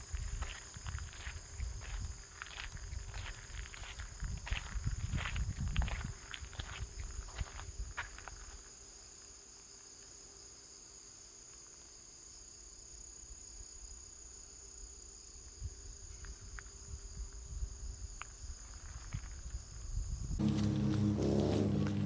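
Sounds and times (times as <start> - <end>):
insects chirping: 0.0 - 22.0
low thumps: 20.4 - 22.0.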